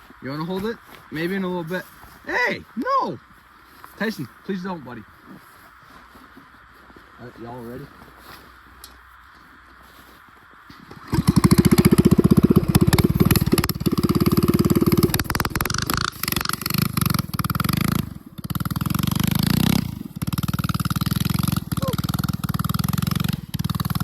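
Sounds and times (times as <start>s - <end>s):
small engine revving: 10.7s - 24.0s.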